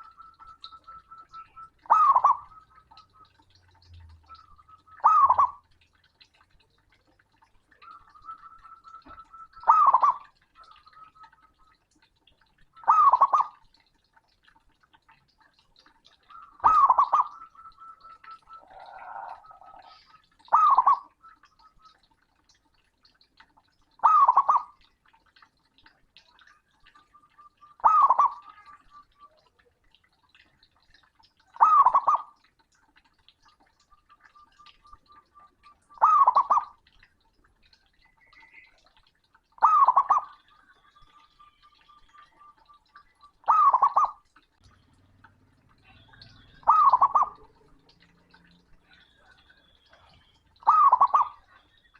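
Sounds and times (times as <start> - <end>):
dove cooing: 0.0 - 5.6, 7.8 - 11.4, 12.8 - 13.5, 16.3 - 21.5, 27.8 - 28.9, 31.6 - 32.3, 35.1 - 36.7, 45.9 - 47.9, 50.1 - 51.7.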